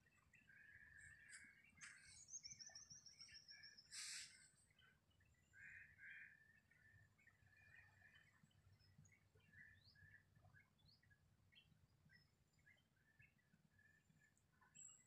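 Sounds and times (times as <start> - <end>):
birds chirping: 0.0 - 15.0
short harsh bird call: 3.9 - 4.5.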